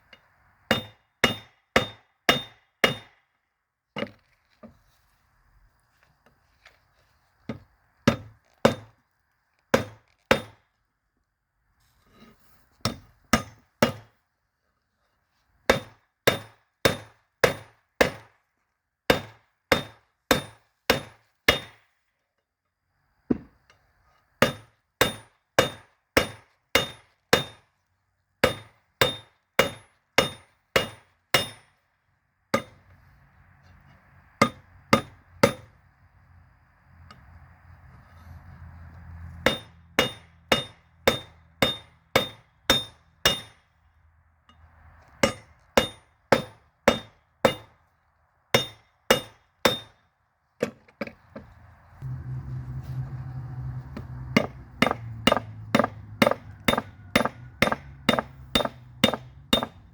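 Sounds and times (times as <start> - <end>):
hammer striking metal on anvil: 0.7 - 3.2, 19.1 - 21.8, 24.4 - 27.6, 28.4 - 31.7, 32.6 - 32.8, 34.4 - 35.7, 39.5 - 43.6, 45.2 - 47.8, 48.6 - 50.0, 54.3 - 59.8.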